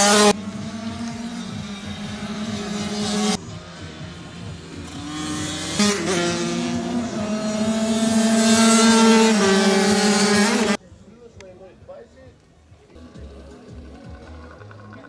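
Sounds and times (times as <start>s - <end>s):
motorcycle engines revving: 0.0s - 10.8s.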